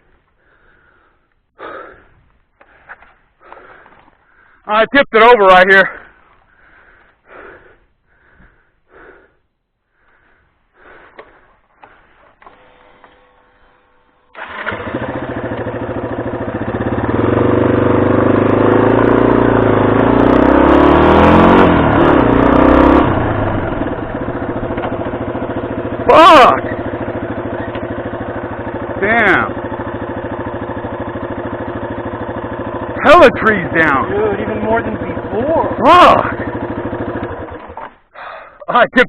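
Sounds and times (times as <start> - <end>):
motorcycle engine revving: 11.2 - 38.1.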